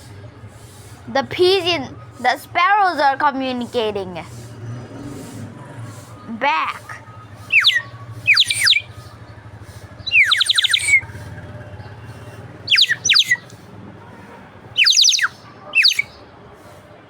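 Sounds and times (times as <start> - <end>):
bird whistle chirping: 7.4 - 9.1, 10.0 - 11.2, 12.7 - 13.5, 14.8 - 16.2.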